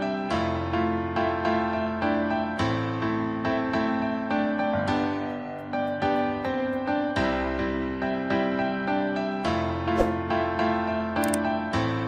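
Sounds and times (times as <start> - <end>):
soft slow piano music: 0.0 - 12.0.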